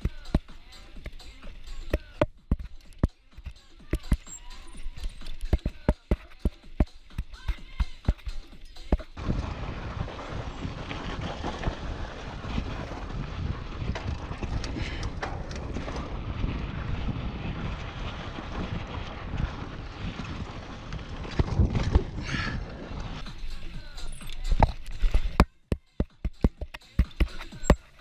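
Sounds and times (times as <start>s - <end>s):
bike rolling over dirt trail: 0.0s - 28.0s
wind buffeting microphone: 7.6s - 25.4s.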